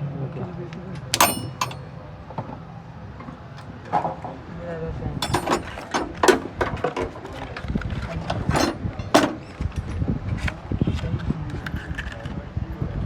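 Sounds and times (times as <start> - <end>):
metallic knocks of hand tools: 1.2 - 1.8, 5.2 - 6.5.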